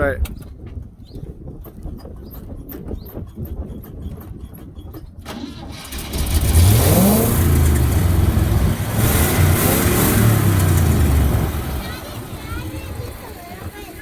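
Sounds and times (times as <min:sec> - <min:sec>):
pickup truck engine starting and running: 0:03.2 - 0:14.0.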